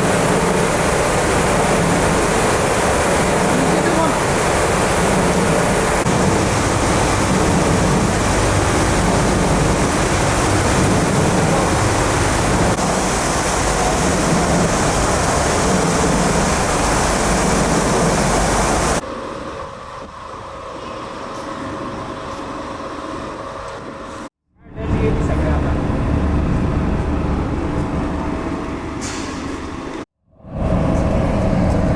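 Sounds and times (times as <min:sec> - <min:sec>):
steady mechanical hum: 0:00.0 - 0:31.9
exhaust blower rushing air: 0:24.8 - 0:31.9.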